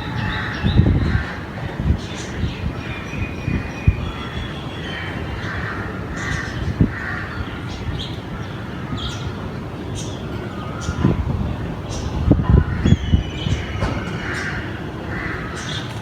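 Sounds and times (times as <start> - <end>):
crows cawing: 0.0 - 2.4, 4.1 - 9.4, 13.8 - 16.0.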